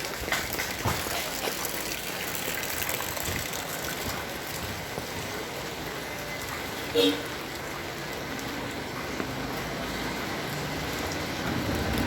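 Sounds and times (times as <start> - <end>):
heavy rain with gushing water: 0.0 - 12.0.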